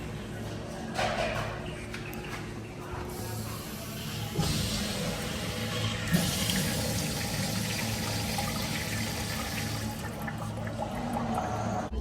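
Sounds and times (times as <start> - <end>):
water rushing through restroom fixture: 3.1 - 11.9.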